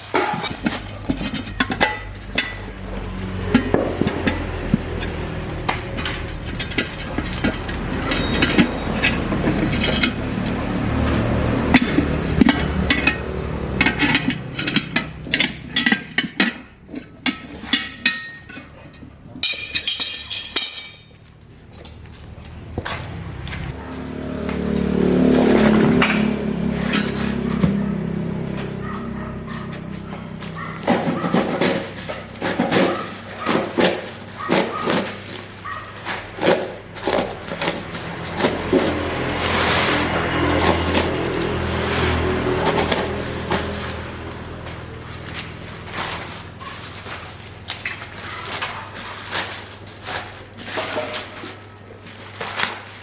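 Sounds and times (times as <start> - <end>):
ringing metallic clinks: 19.4 - 22.1.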